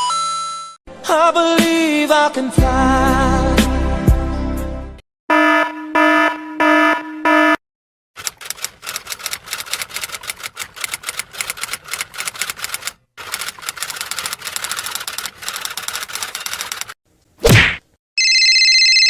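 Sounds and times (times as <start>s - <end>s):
rapid keyboard typing: 8.2s - 17.0s.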